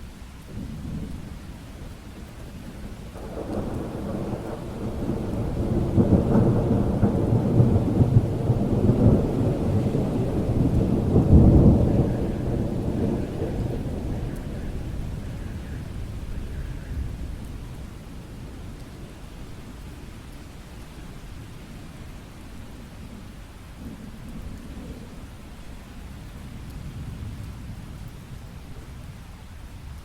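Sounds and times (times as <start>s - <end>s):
steady rain: 0.0s - 30.0s
thunder rolling: 3.1s - 18.2s.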